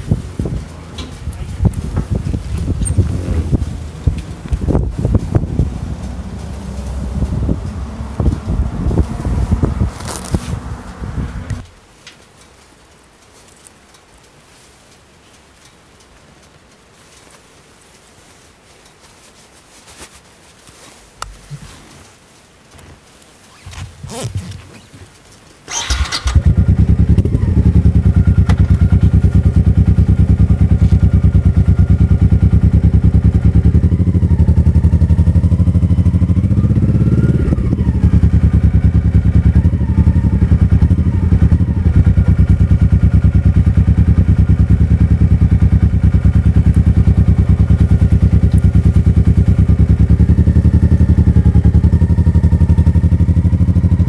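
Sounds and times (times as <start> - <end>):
motorcycle engine idling: 0.0 - 11.6, 25.7 - 54.0.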